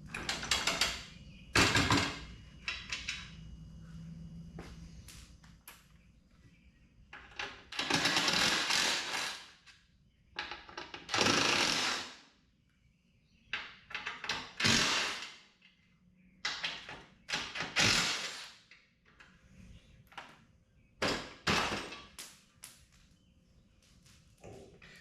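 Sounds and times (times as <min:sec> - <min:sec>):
clicks and knocks of hardware: 0:00.1 - 0:03.4.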